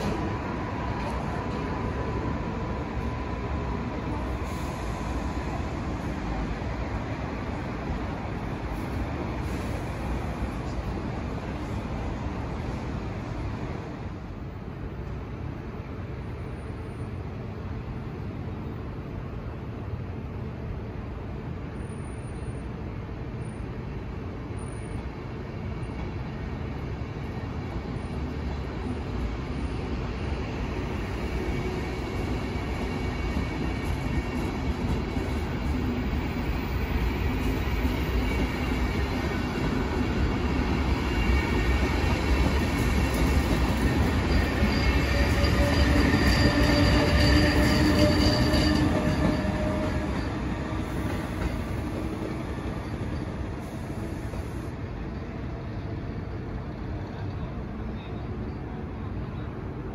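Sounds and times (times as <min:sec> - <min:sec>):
train running on track: 0:00.0 - 0:59.9
wheels squealing: 0:42.8 - 0:53.4.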